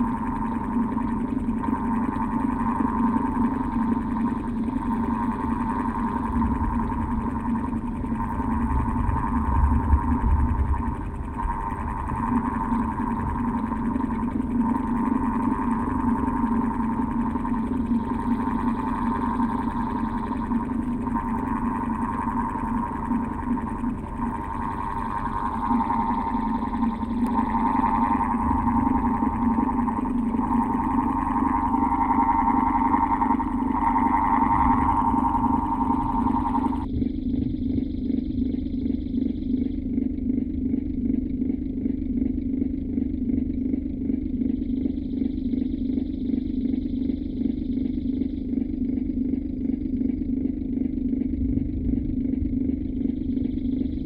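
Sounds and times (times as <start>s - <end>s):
electric fan humming: 0.0s - 38.5s
low rumble: 4.8s - 44.5s, 48.7s - 54.0s.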